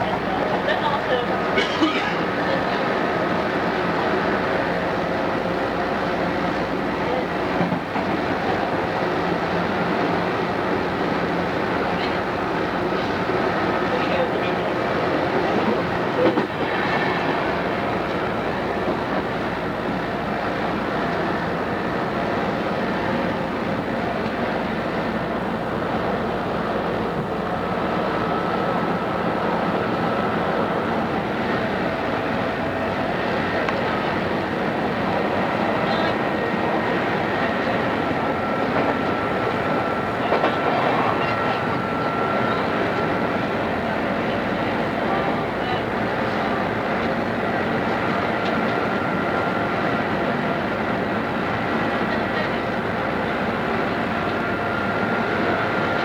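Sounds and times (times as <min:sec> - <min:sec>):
rail-joint clack: 0:01.6 - 0:02.8, 0:38.6 - 0:41.8.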